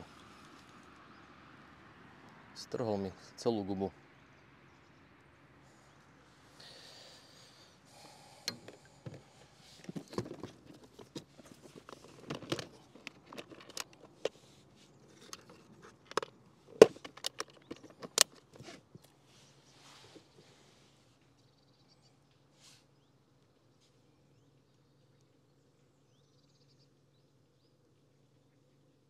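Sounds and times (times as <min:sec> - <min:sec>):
fishing tackle clicks and scrapes: 0:08.4 - 0:19.2.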